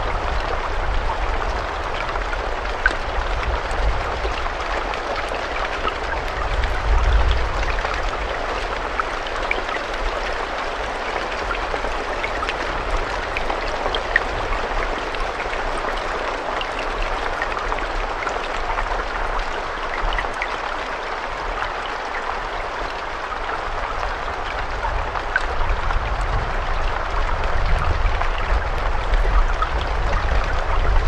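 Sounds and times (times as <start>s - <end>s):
raindrops ticking: 0.0s - 31.0s
steady rain: 0.0s - 31.0s.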